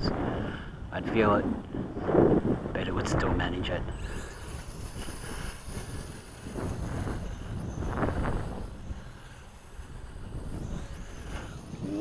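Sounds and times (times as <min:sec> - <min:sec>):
wind buffeting microphone: 0:00.0 - 0:12.0
quadcopter motors whining: 0:03.9 - 0:12.0.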